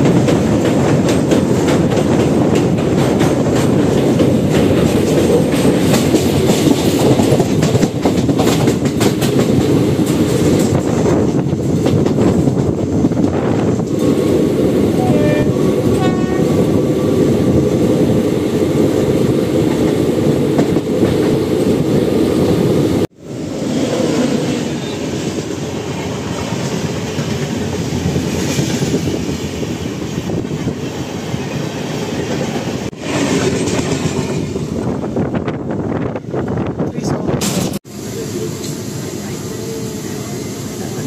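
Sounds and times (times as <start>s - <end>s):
wheels clattering over rails: 0.0s - 14.5s
train running at speed: 0.0s - 41.0s
brief horn-like tone: 15.0s - 16.5s.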